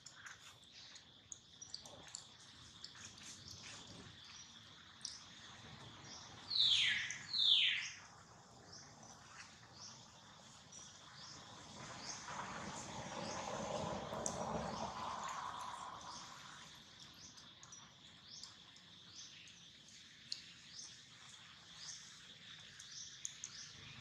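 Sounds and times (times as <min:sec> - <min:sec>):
insect drone: 0:00.0 - 0:24.0
birds calling with descending pitch: 0:06.5 - 0:08.0.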